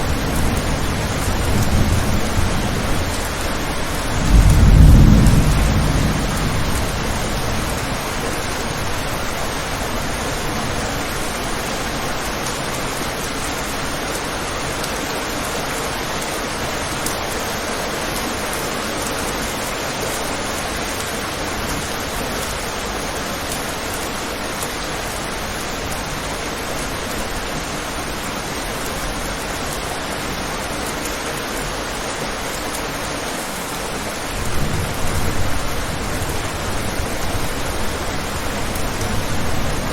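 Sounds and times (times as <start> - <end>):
thunder rumble: 0.0 - 11.5, 34.3 - 39.9
rain falling: 0.0 - 39.9.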